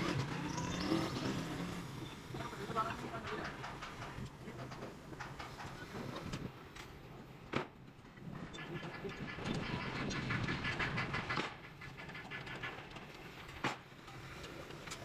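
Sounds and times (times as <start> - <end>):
mechanical rattling and rumbling: 0.0 - 15.0.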